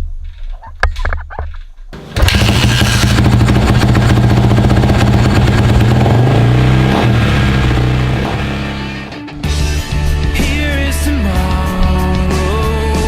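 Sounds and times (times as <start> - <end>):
dirt bike engine running: 2.0 - 9.2.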